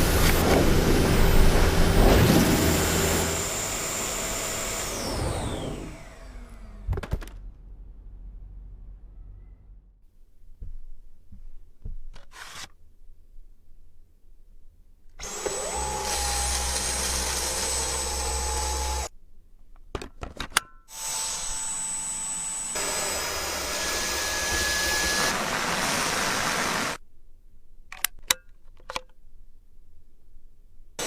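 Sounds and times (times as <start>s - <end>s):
vacuum cleaner whining: 0.0s - 6.9s, 15.2s - 19.1s, 20.9s - 27.0s
sharp clicks and knocks: 27.9s - 29.2s.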